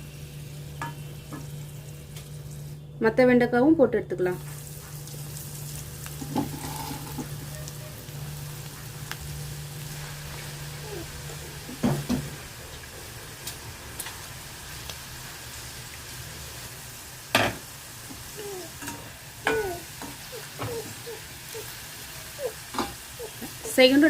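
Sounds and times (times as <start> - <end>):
okra sizzling in hot oil: 0.0 - 2.9, 4.4 - 24.0.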